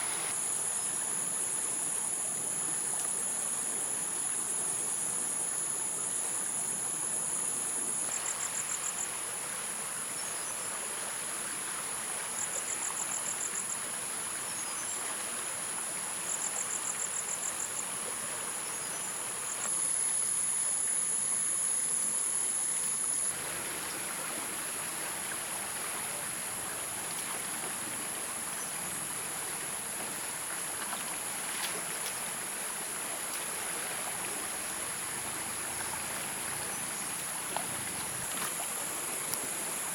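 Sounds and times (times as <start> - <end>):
stream water running: 0.0 - 39.9
insects whining: 22.4 - 39.9
insect pulsed trills: 26.2 - 39.9.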